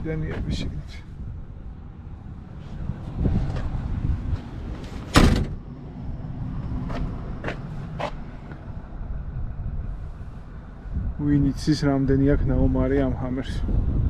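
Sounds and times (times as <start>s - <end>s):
wind rumble on microphone: 0.0s - 14.0s
loud sharp thump: 5.0s - 5.6s.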